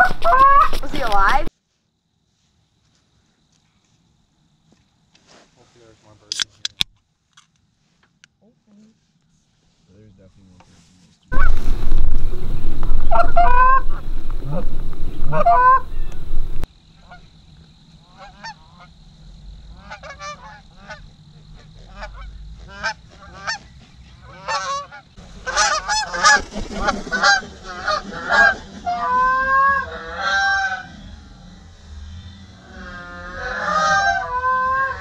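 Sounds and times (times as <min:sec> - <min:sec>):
geese honking: 0:00.0 - 0:01.4, 0:11.3 - 0:16.7, 0:18.0 - 0:18.9, 0:19.7 - 0:31.4, 0:32.5 - 0:35.0.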